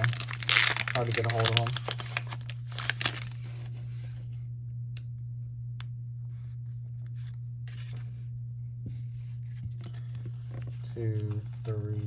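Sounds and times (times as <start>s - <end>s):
trading cards rustling and sliding: 0.0s - 3.9s, 7.2s - 8.2s
low electrical hum: 0.0s - 12.0s.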